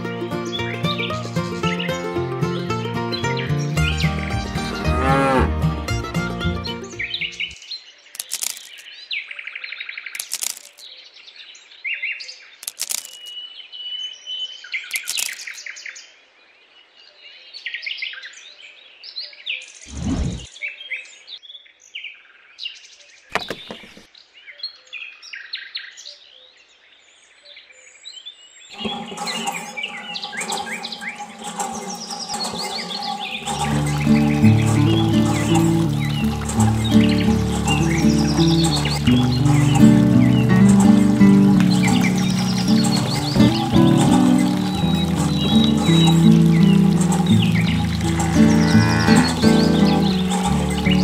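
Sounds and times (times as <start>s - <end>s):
background music: 0.0s - 7.6s, 28.8s - 51.0s
songbirds chirping: 0.0s - 51.0s
sharp clicks: 8.2s - 8.8s, 10.2s - 10.8s, 12.6s - 13.3s, 14.9s - 15.6s.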